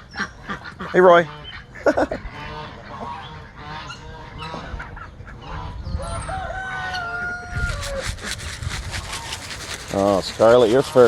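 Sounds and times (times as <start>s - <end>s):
chickens clucking: 0.0s - 11.0s
geese honking: 0.1s - 5.8s
rooster crowing: 6.0s - 8.2s.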